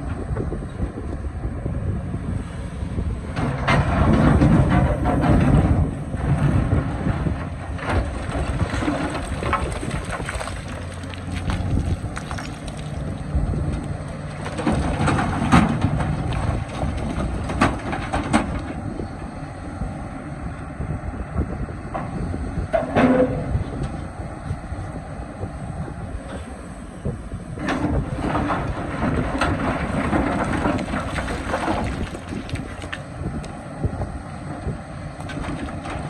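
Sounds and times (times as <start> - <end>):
excavator diesel engine: 0.0 - 36.0
digging knocks and clanks: 7.4 - 18.8, 27.6 - 33.1.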